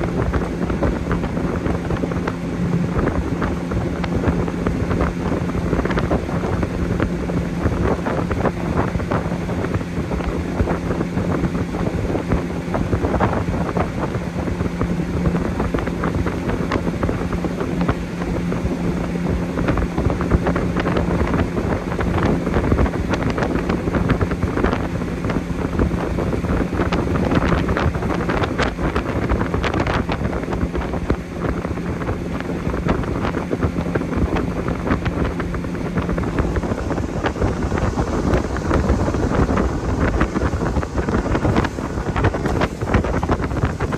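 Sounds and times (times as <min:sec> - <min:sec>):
boat motor running: 0:00.0 - 0:43.9
wind noise on microphone: 0:00.0 - 0:43.9.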